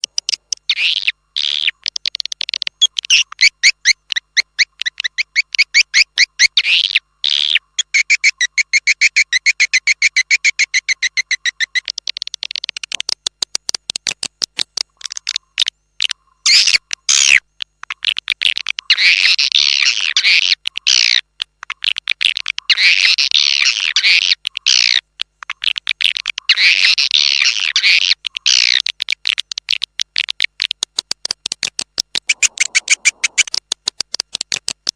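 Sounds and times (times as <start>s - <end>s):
swiftlet chirps and chattering: 0.0s - 12.5s, 32.2s - 33.6s.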